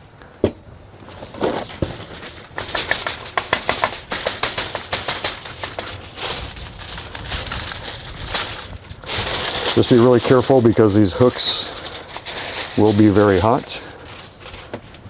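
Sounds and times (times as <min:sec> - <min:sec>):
seasoning shaker rattling: 0:02.2 - 0:15.0.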